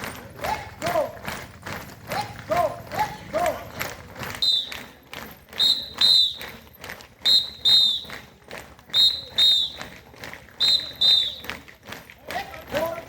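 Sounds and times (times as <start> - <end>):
short high whistle blasts: 8.9 - 9.9, 10.6 - 11.4.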